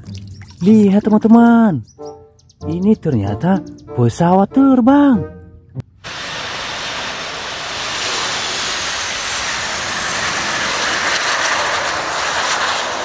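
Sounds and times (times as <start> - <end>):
jet engines rushing: 6.0 - 13.0.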